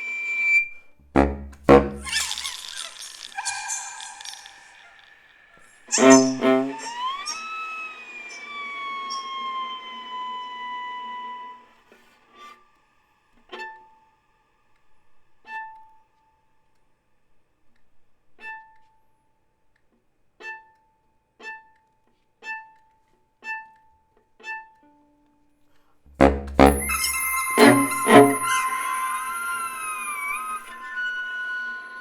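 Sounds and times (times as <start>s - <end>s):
viola playing short high notes: 0.0s - 4.6s, 5.9s - 10.0s, 26.1s - 32.0s
baritone saxophone: 1.0s - 2.7s, 5.9s - 7.0s, 26.1s - 32.0s
loud dense music passage: 1.2s - 2.1s.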